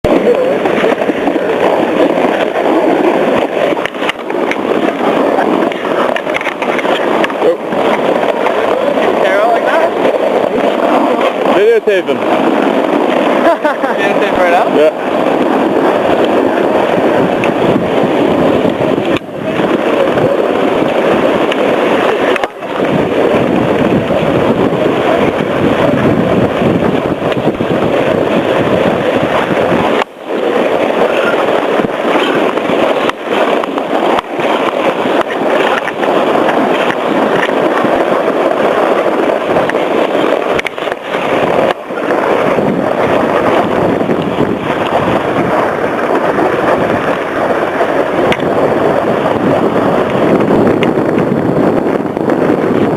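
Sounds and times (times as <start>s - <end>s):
sliding over packed snow: 0.0s - 52.9s
wind buffeting microphone: 0.0s - 52.9s.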